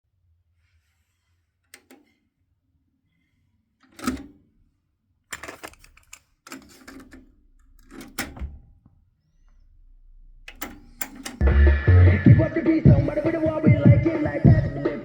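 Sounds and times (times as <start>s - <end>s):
cassette deck clicks and clunks: 3.9s - 4.3s, 7.9s - 8.6s, 10.5s - 11.4s.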